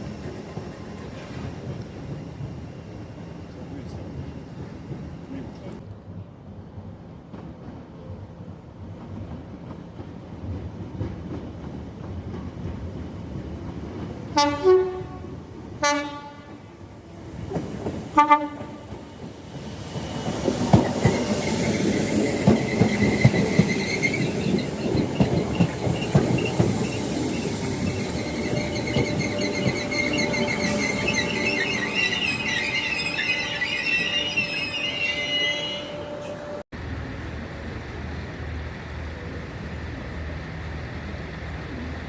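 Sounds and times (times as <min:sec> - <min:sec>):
train horn blasts: 0:14.4 - 0:16.6, 0:18.2 - 0:18.8
train wheels clicking over rail joints: 0:17.5 - 0:31.9
high wheel squeal: 0:21.0 - 0:36.6.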